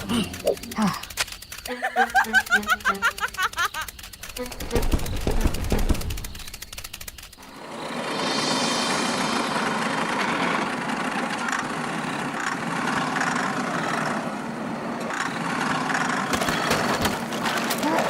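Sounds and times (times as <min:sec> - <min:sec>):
small motor whirring: 0:00.0 - 0:07.7.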